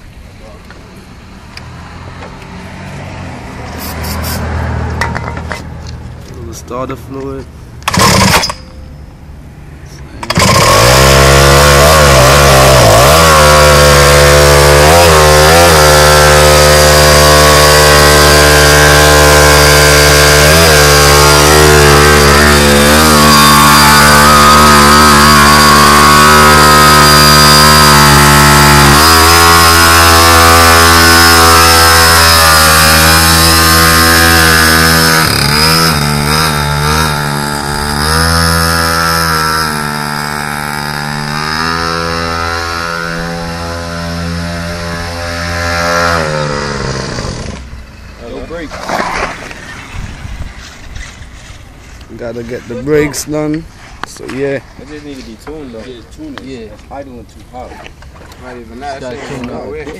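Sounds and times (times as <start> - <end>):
small two-stroke engine revving: 7.8 - 8.7, 10.2 - 47.9.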